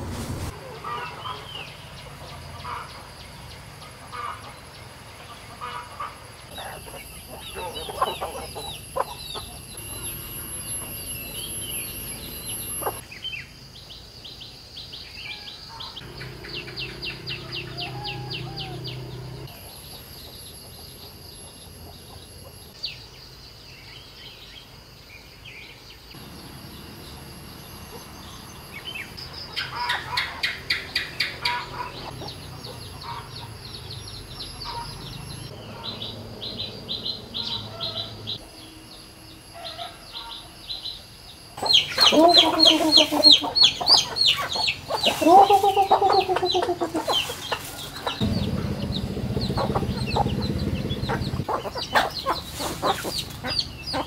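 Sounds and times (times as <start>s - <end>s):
small birds chirping: 0.5s - 54.0s.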